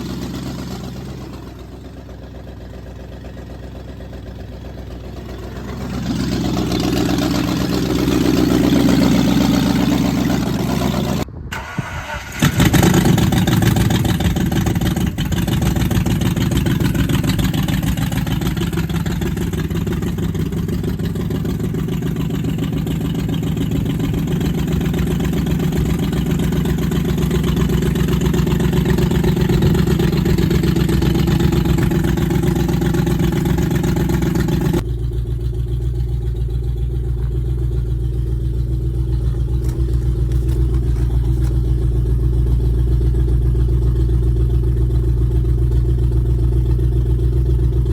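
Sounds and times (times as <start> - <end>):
car engine running: 0.0 - 11.3, 12.6 - 47.9.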